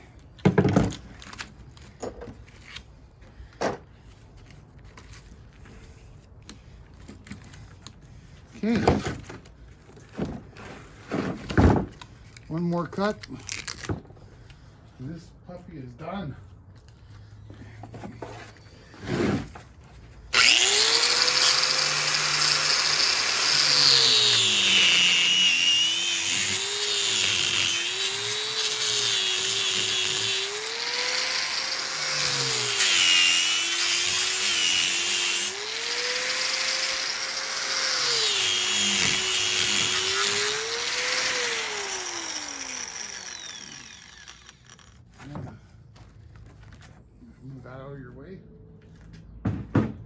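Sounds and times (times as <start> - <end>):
electric power tool cutting: 20.3 - 45.0.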